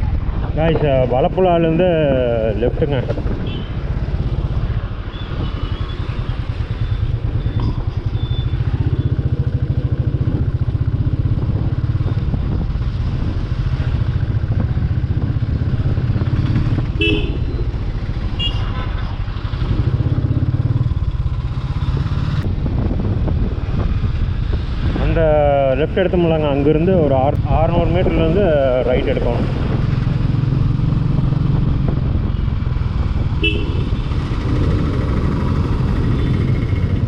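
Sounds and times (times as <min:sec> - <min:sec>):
motorcycle engine running: 0:03.1 - 0:24.6, 0:29.5 - 0:37.0.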